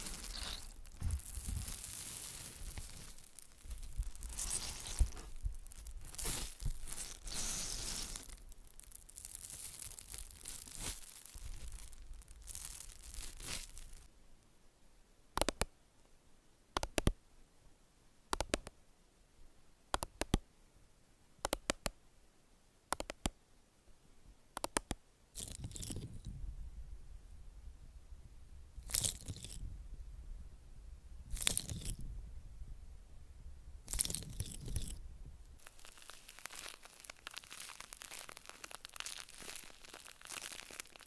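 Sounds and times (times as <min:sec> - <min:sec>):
rustling and tearing: 0:00.0 - 0:14.1, 0:33.9 - 0:35.0, 0:35.6 - 0:41.0.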